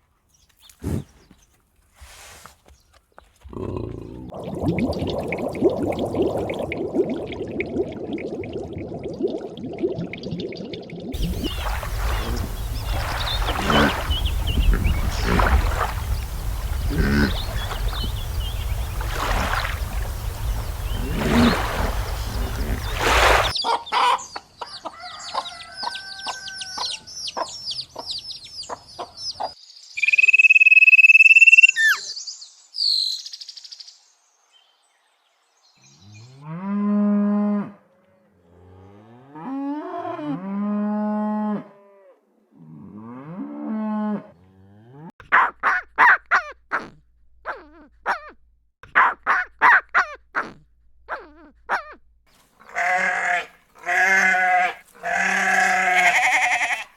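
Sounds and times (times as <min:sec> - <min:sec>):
cow mooing: 0:11.2 - 0:23.1.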